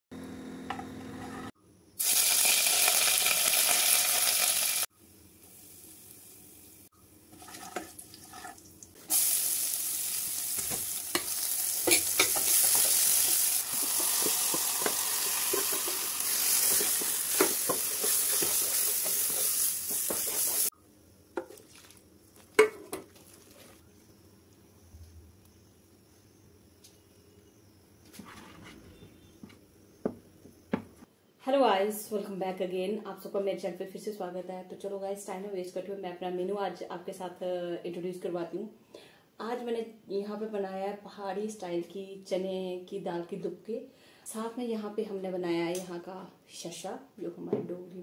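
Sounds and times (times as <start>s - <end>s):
hot oil sizzling in a pan: 2.0s - 20.7s
wooden spatula stirring and tapping: 10.6s - 20.7s.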